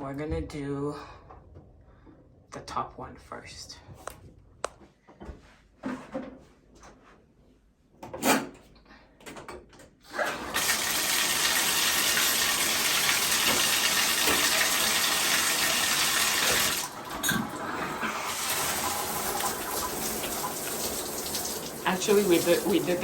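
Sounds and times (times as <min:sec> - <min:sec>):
shower spray running: 0:10.5 - 0:23.0.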